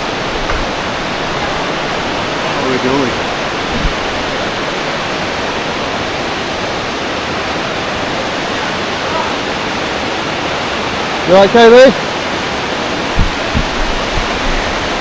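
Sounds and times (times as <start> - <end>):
waterfall roaring: 0.0 - 15.0
low knock: 0.3 - 1.3, 13.2 - 14.3.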